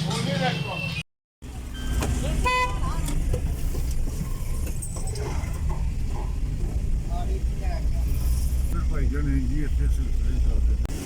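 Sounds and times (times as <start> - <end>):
vehicle engines rumbling: 0.0 - 11.0
car horn toot: 2.2 - 3.1.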